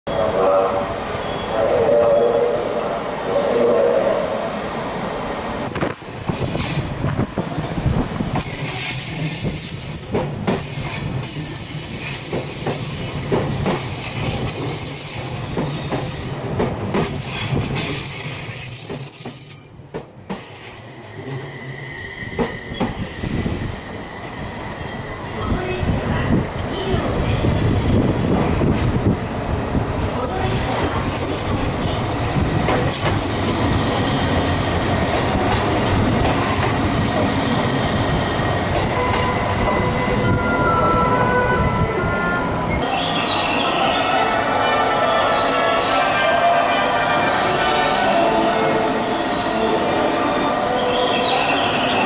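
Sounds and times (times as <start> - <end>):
rail joint clicks: 5.3 - 24.7, 30.0 - 43.0
train wheels squealing: 8.4 - 19.7, 20.4 - 26.0, 27.5 - 32.4.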